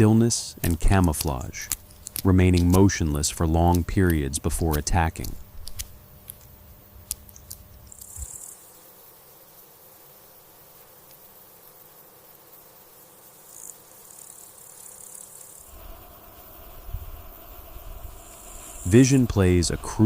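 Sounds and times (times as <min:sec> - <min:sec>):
light insect ticks: 0:00.0 - 0:20.0
high thin insect buzz: 0:04.6 - 0:20.0.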